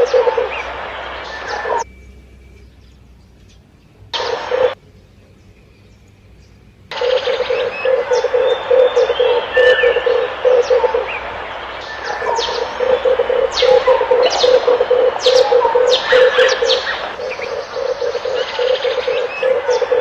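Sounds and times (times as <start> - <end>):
doves cooing: 0.0 - 1.8, 4.2 - 4.8, 6.9 - 20.0
birds chirping: 0.0 - 20.0.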